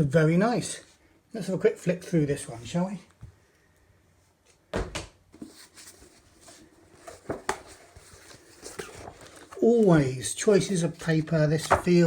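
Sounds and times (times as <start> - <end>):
pages rustling: 5.4 - 12.0.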